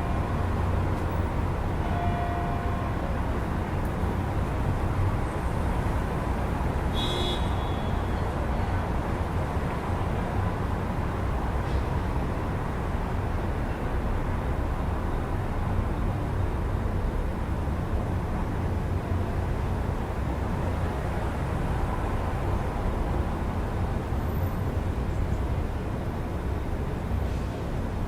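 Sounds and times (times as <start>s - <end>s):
low rumble of city traffic: 0.0s - 28.0s.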